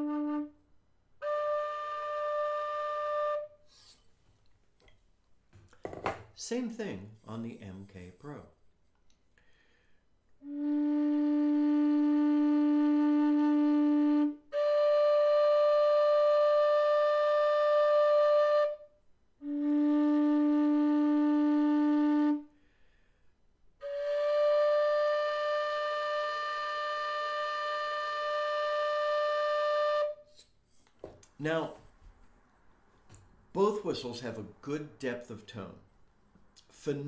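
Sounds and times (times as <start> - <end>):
low whistle notes: 1.2 - 4.1.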